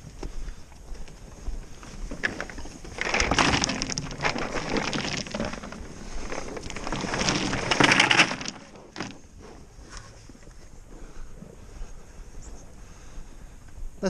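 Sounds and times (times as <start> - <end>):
pellets poured onto ground: 2.9 - 9.2.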